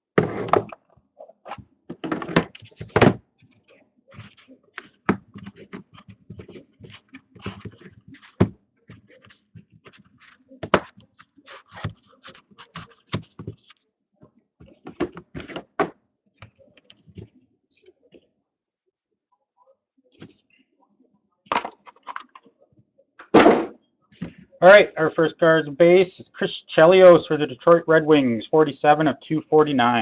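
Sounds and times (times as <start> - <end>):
cards and packaging handled: 1.5 - 13.8.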